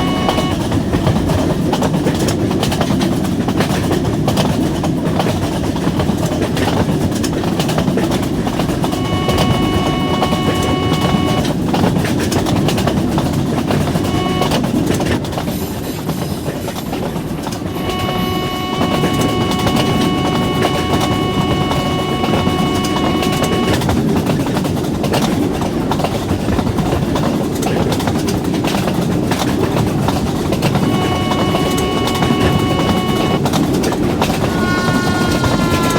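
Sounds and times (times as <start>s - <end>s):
high ringing tone: 0.0s - 0.6s, 8.7s - 11.5s, 14.0s - 14.6s, 17.6s - 23.8s, 30.8s - 33.4s, 34.4s - 35.9s.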